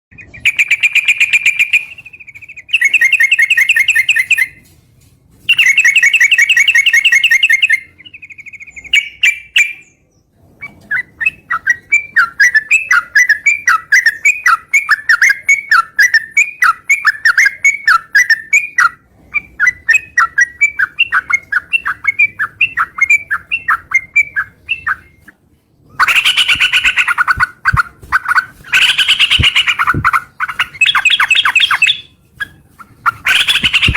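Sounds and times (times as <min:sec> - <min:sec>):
bird calling with buzzing trills: 0:26.0 - 0:32.1, 0:33.1 - 0:33.9
bird chattering notes: 0:26.0 - 0:33.9.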